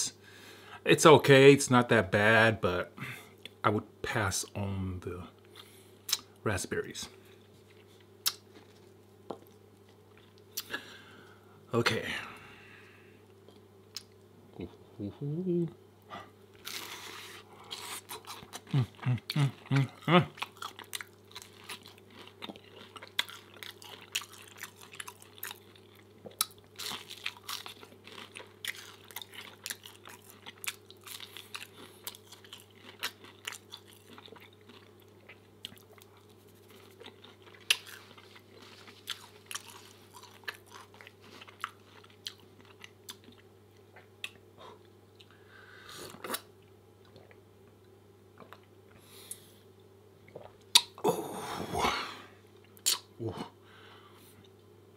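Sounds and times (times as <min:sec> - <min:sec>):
wet mouth clicks and smacks: 0:50.3 - 0:51.0.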